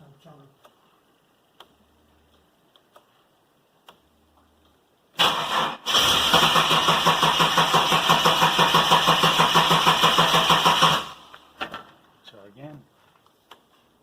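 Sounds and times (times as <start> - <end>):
car starter cranking engine: 5.2 - 11.3.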